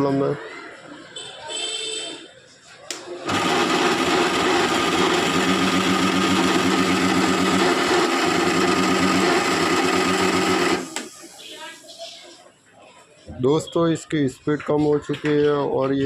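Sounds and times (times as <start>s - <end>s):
mixer grinder motor running: 3.2s - 11.1s.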